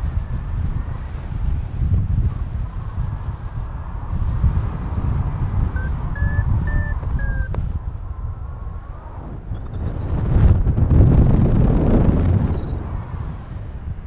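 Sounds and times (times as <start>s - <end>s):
wind buffeting microphone: 0.0s - 14.0s
variometer beeps: 5.8s - 7.8s.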